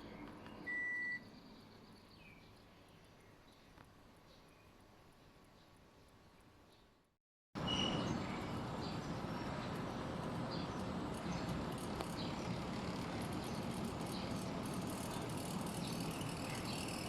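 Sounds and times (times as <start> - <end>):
high bird chirps: 7.6 - 9.4
air conditioner unit rushing: 7.6 - 17.0.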